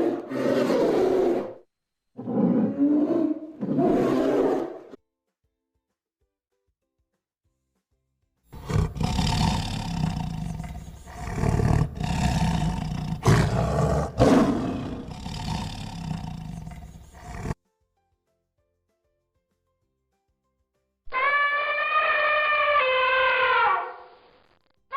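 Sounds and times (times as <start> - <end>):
big cat roaring: 0.0 - 1.6, 2.2 - 4.9, 8.6 - 17.6.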